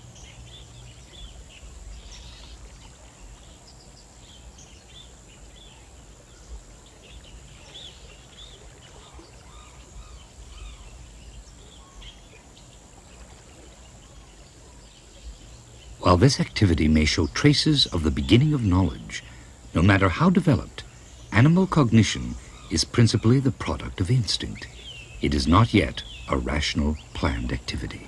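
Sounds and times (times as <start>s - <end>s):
low steady rumble and hiss: 0.0s - 28.0s
bird chirps: 13.9s - 28.0s.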